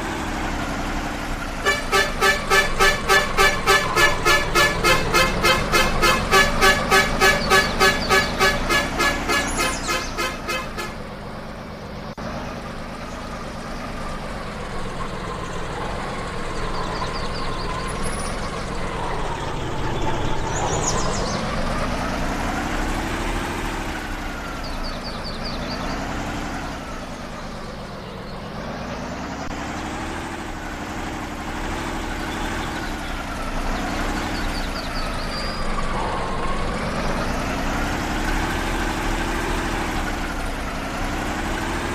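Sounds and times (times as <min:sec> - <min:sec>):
off-road vehicle engine revving: 0:00.0 - 0:11.1, 0:12.1 - 0:41.9
horn-like tone beeping: 0:01.6 - 0:11.0.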